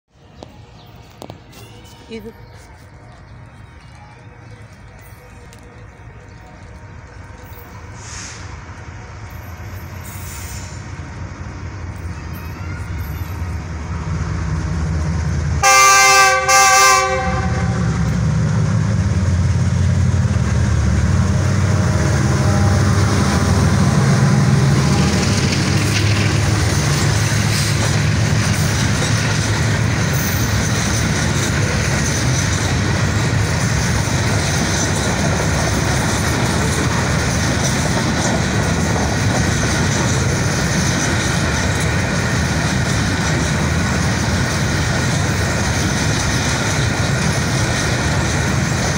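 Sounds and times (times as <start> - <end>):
locomotive rumbling past: 0.2 - 48.9
freight wagons clickety-clack: 0.4 - 10.9, 24.4 - 48.9
diesel locomotive horn blasts: 15.6 - 18.1, 21.7 - 25.0.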